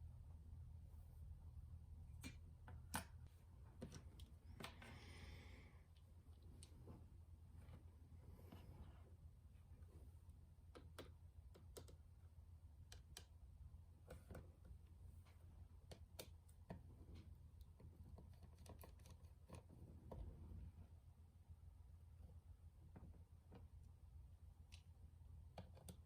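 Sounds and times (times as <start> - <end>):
steady low hum: 0.0 - 18.4
small clicks and taps of tools: 10.7 - 12.0, 15.8 - 20.2, 25.5 - 26.0.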